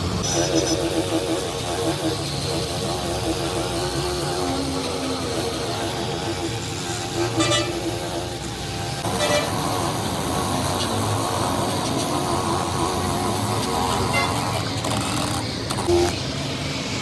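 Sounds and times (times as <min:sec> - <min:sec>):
vehicle engine and traffic noise: 0:00.0 - 0:17.0
car horn toots: 0:07.3 - 0:07.9, 0:09.0 - 0:09.7.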